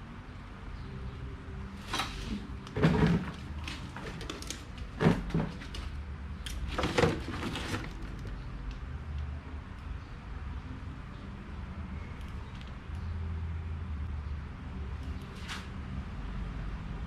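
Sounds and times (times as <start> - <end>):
hard parts and tools clattering: 1.9 - 8.4.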